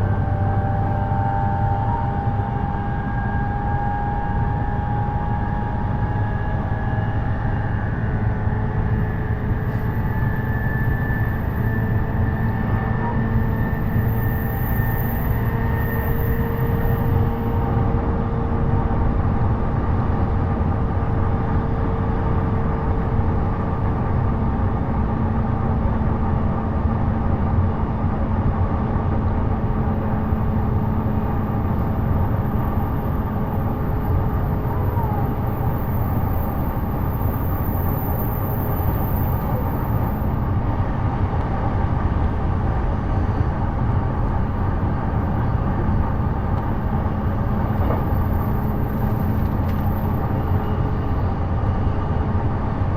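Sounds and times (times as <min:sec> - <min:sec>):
train wheels rumbling on rail: 0:00.0 - 0:52.9.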